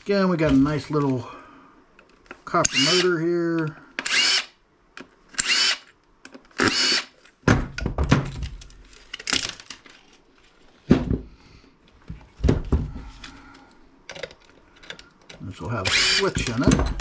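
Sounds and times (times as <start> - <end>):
power drill-driver bursts: 2.6 - 3.1, 4.0 - 4.6, 5.4 - 5.9, 6.6 - 7.1, 15.8 - 16.6.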